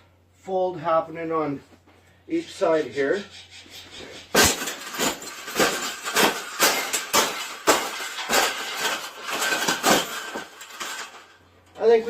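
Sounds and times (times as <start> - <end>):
cage knocking and clanking: 4.2 - 11.2.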